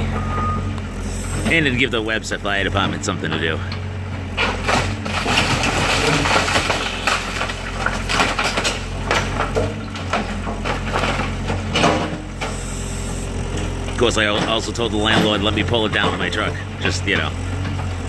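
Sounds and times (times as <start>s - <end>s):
low engine hum: 0.0s - 18.0s
breaking timber crunching: 2.8s - 12.7s, 13.8s - 18.0s.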